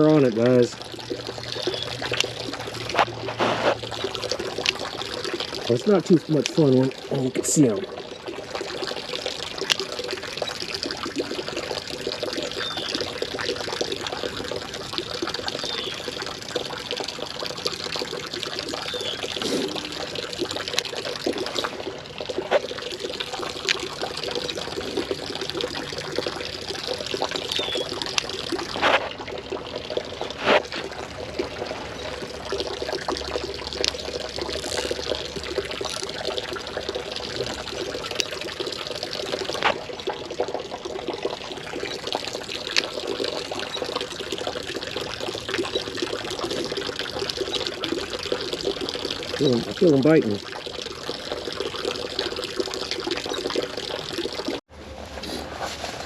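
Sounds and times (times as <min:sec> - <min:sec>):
creek water trickling: 0:00.0 - 0:54.7.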